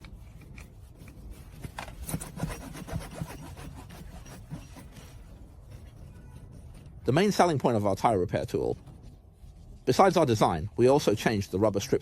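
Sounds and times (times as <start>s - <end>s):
rubbing rasping strokes: 0.0s - 7.0s.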